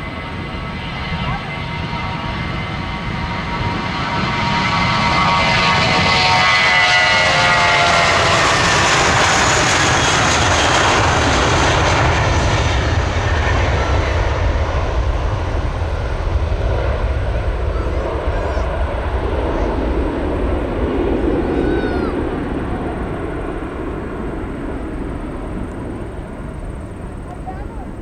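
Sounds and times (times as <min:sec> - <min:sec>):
jet airliner taking off: 0:00.0 - 0:28.0.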